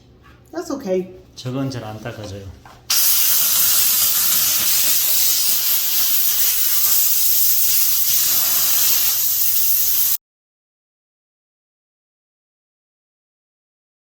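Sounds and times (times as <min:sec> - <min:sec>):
steam cleaner hissing: 0:02.9 - 0:10.2.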